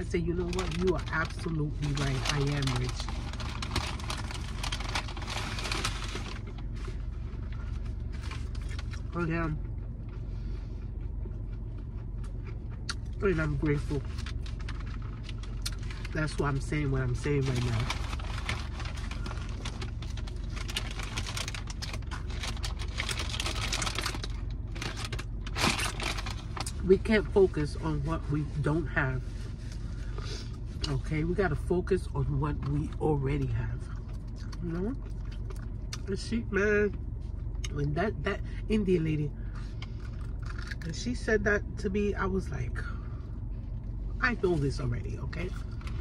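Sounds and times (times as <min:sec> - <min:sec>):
chewing crunchy chicken: 0:01.8 - 0:16.2, 0:33.9 - 0:36.1, 0:39.5 - 0:40.9.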